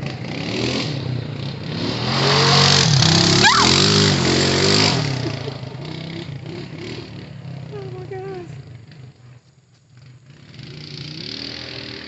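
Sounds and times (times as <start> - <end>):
atv engine revving: 0.0 - 12.0
short rising squeal: 3.3 - 4.0.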